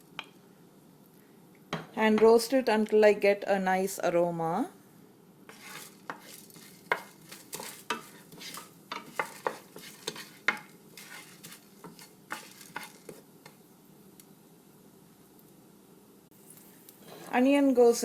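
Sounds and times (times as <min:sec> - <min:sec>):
spatula scraping a pan: 0:05.5 - 0:13.6, 0:16.6 - 0:17.6
faint oil sizzle: 0:05.5 - 0:15.6, 0:16.3 - 0:18.0.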